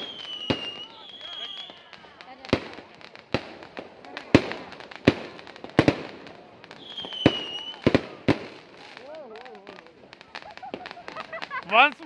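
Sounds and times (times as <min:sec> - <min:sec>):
firework bangs: 0:00.0 - 0:12.0
firework crackling: 0:00.0 - 0:12.0.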